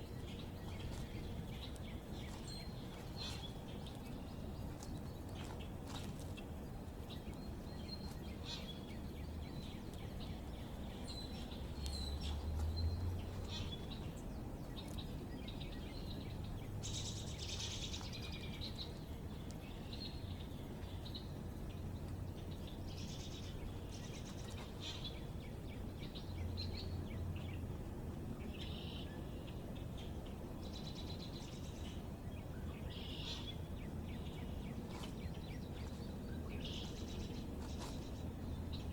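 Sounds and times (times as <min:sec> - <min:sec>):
small birds chirping: 0:00.0 - 0:27.6, 0:28.4 - 0:38.9.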